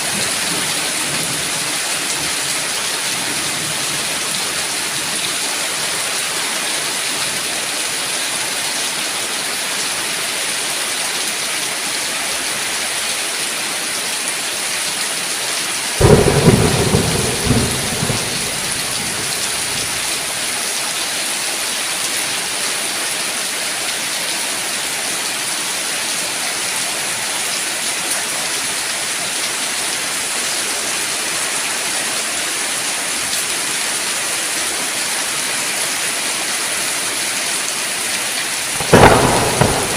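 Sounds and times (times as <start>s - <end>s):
steady rain falling: 0.0s - 39.9s
thunder clap rumbling: 16.0s - 20.3s, 38.8s - 39.9s.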